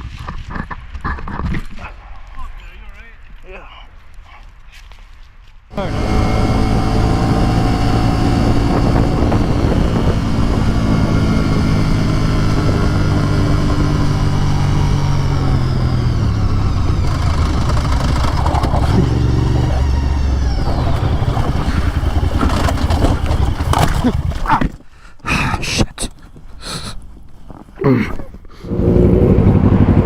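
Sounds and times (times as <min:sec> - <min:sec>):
motorcycle engine running: 0:05.7 - 0:24.7, 0:28.6 - 0:30.0.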